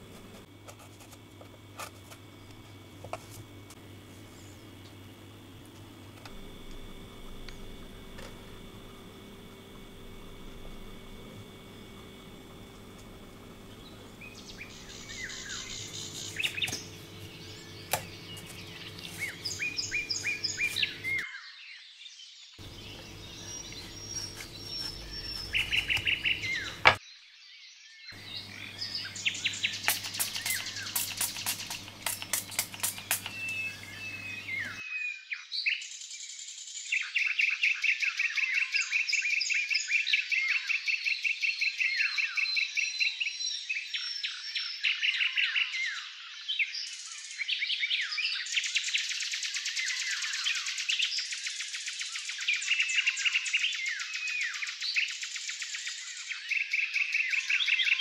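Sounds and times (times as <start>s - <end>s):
songbirds chirping and trilling: 10.5s - 58.0s.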